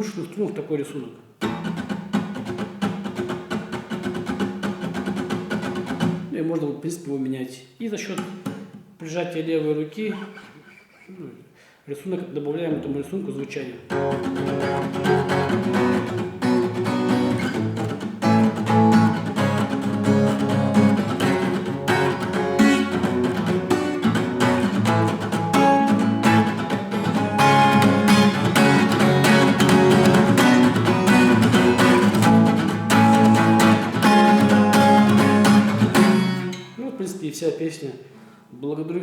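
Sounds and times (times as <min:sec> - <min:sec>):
acoustic guitar strumming: 0:01.4 - 0:06.3, 0:13.9 - 0:36.8.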